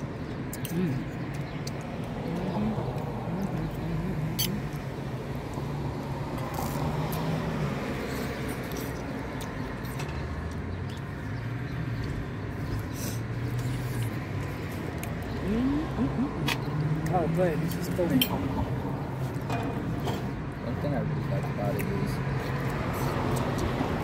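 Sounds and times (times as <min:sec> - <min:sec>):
vehicle engine humming: 0:00.0 - 0:24.0.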